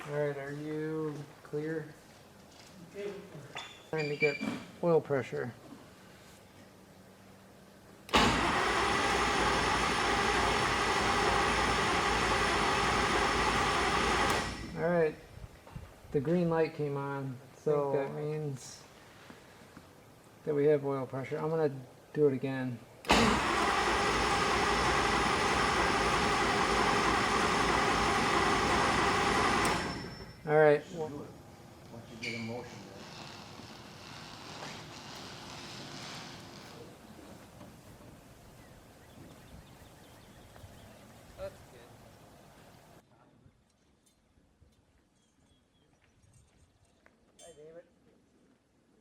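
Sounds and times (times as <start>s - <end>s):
engine starter whirring: 8.1s - 14.8s, 23.0s - 30.5s.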